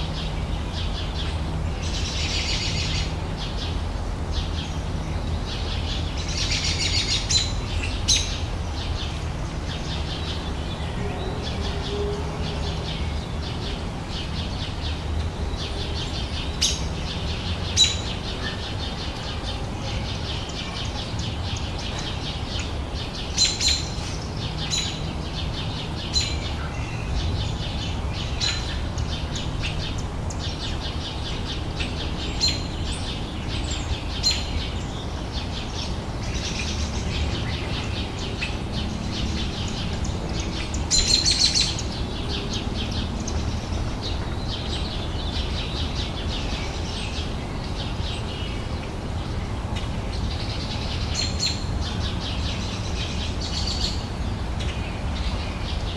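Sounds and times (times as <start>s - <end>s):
songbirds chirping: 0.0s - 55.9s.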